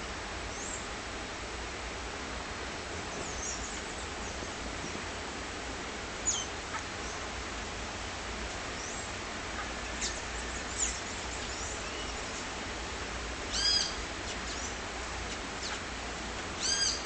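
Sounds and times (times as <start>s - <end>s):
high-pitched bird calls: 13.5s - 15.8s, 16.6s - 17.0s.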